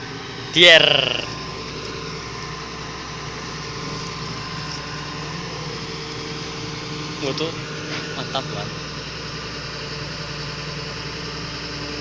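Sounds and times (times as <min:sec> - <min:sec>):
lifting machine engine humming: 0:00.0 - 0:12.0.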